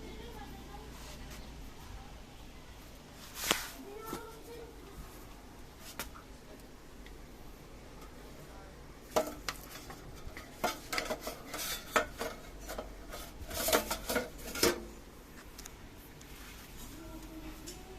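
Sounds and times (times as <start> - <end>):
hard objects clinking and clattering: 9.1 - 15.0.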